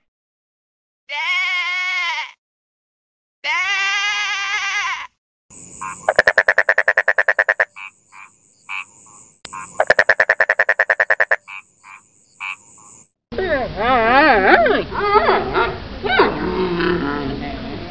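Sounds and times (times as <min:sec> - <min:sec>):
frog trilling: 0:05.6 - 0:13.0.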